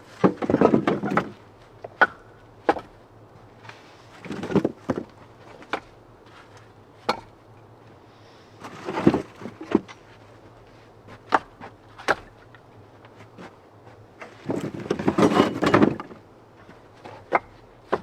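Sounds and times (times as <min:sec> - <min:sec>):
firewood logs knocking: 0:00.1 - 0:03.0, 0:04.2 - 0:06.0, 0:11.1 - 0:12.6, 0:14.2 - 0:18.0.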